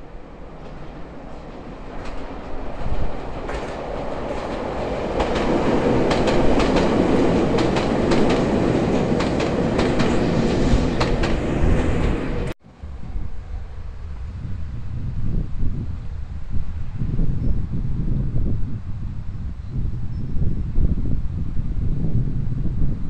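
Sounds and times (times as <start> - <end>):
electric train running close by: 0.0 - 15.0
train wheels clicking over rail joints: 0.6 - 12.5.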